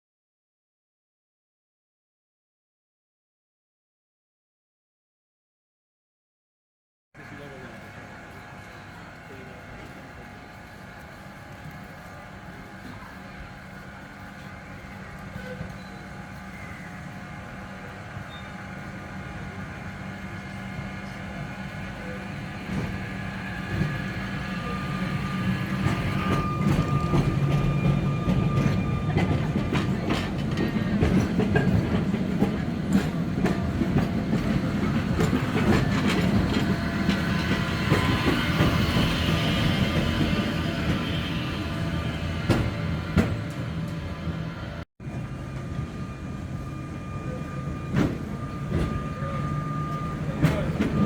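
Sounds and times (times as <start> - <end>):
electric tram rumbling: 7.2 - 51.0
wheels clicking on rails: 7.6 - 46.0.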